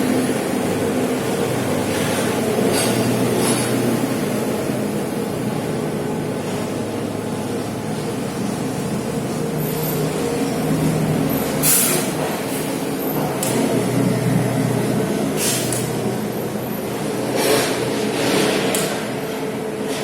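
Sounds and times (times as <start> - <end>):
heavy engine droning: 0.0 - 20.0
short air hisses: 11.6 - 12.2, 15.4 - 15.8.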